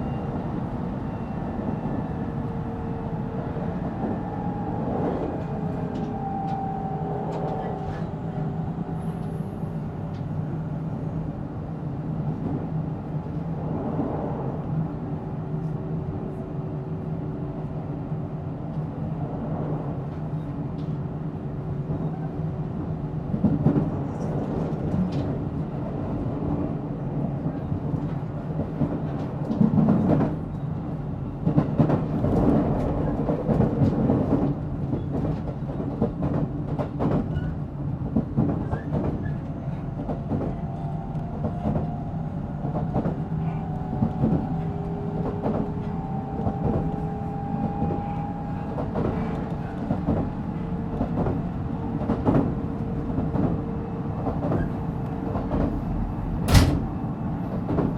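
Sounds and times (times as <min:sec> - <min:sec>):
train wheels rumbling: 0:23.2 - 0:57.9
knocks over track: 0:56.5 - 0:56.9.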